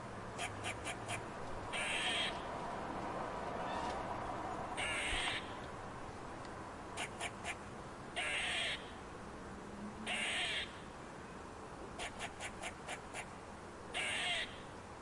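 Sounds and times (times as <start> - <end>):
bird harsh hoarse calls: 0.4 - 2.5, 13.9 - 14.7.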